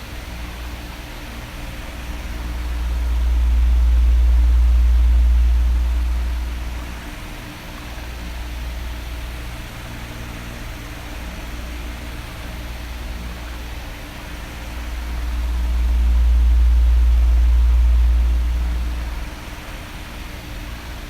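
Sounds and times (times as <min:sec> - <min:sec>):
electric fan running: 0:00.0 - 0:21.0
low rush of air: 0:01.9 - 0:07.3, 0:14.4 - 0:19.6.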